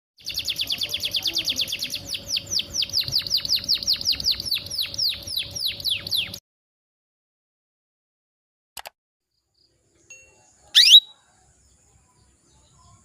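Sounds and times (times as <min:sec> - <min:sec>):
canary trilling call: 0:10.8 - 0:11.1.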